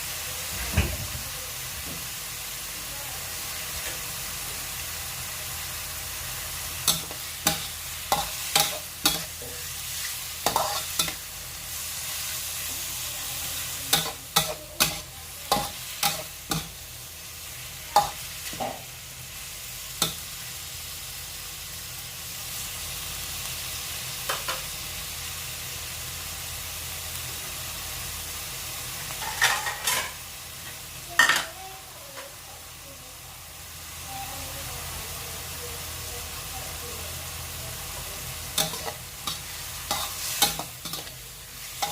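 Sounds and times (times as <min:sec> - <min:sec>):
food sizzling in a pan: 0:00.0 - 0:41.9
spatula clanking against pan: 0:06.8 - 0:09.5, 0:13.9 - 0:16.7, 0:38.6 - 0:41.2.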